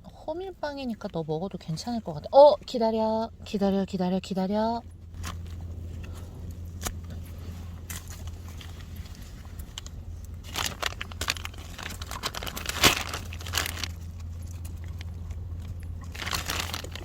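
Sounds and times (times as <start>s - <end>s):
plastic bag crinkling: 8.0s - 17.0s.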